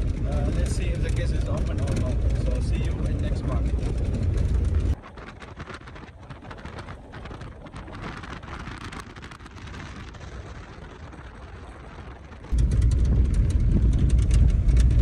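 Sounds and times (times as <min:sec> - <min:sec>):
small crackling clicks: 0:00.0 - 0:05.0
car road rumble: 0:00.0 - 0:15.0.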